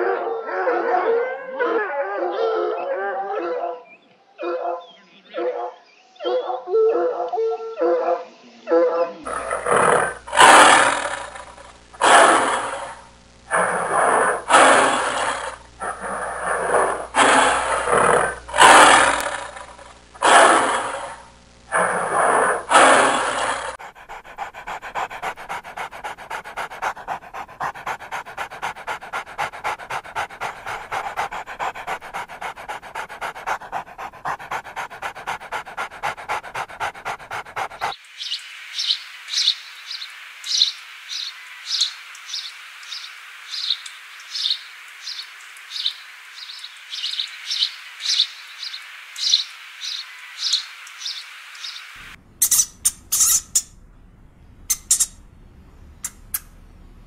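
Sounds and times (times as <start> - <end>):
dog panting: 21.8 - 38.0
sharp high squeaks: 52.4 - 53.7, 54.7 - 55.2
short high thin calls: 52.4 - 53.8, 54.7 - 55.2.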